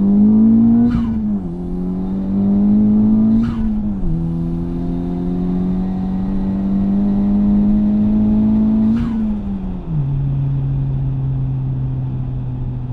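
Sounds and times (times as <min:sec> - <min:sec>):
turbocharged car engine revving: 0:00.0 - 0:09.4.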